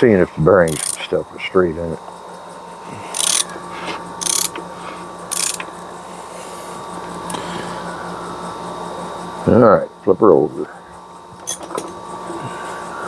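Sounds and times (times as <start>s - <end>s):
rasping strokes on metal: 2.8s - 7.9s.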